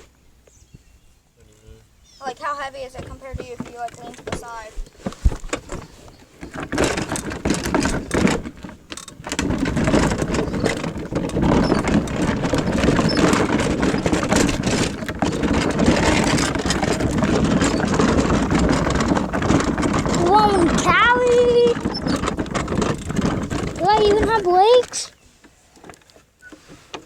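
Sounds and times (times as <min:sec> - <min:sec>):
dirt bike engine running: 0:06.4 - 0:25.1.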